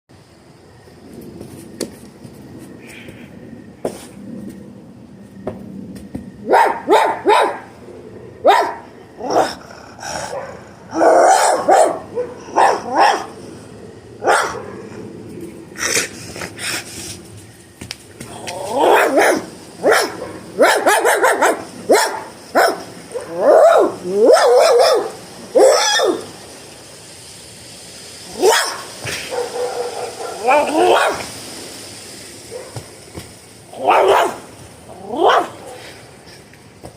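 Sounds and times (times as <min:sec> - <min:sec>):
person imitating puppy barks: 0:30.4 - 0:31.2.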